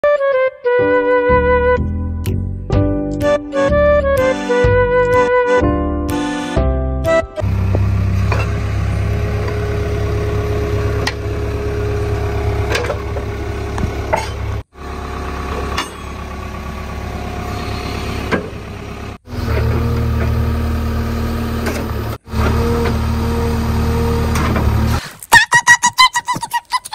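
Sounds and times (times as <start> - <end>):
vehicle engine idling: 7.4 - 25.0.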